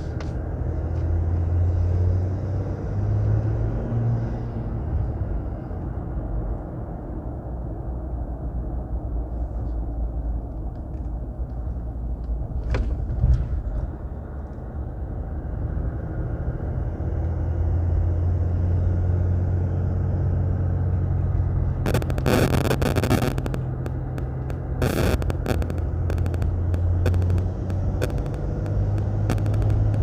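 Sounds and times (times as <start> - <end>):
diesel truck engine running: 19.9 - 30.0
crackling noise: 20.9 - 30.0.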